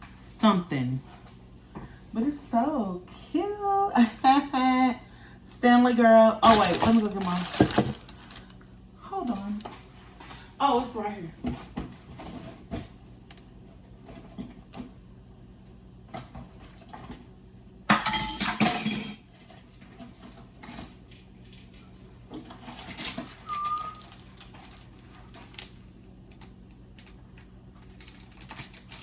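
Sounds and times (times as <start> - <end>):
short squeak-like tone: 23.4 - 24.1.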